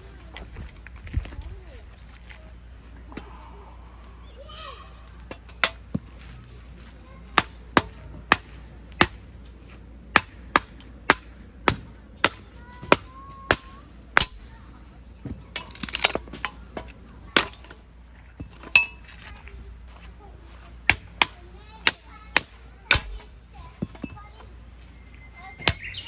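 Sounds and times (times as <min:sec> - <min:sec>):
blade chopping wood: 0:10.1 - 0:14.5, 0:20.9 - 0:24.2.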